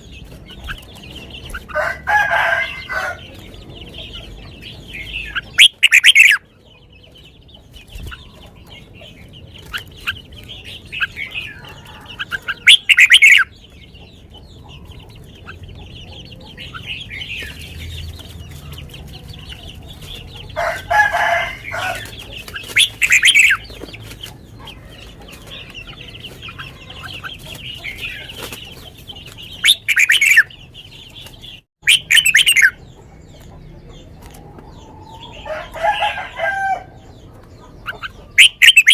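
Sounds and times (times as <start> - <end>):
birds twittering: 0.0 - 38.9
low long bird call: 5.4 - 6.4
bird singing whistled phrases: 5.6 - 6.4, 12.6 - 13.5, 31.8 - 32.8, 38.4 - 38.9.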